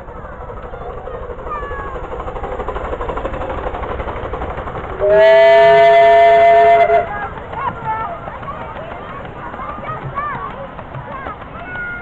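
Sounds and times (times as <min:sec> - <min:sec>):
miniature train running: 0:00.0 - 0:12.0
locomotive whistle: 0:05.0 - 0:07.2.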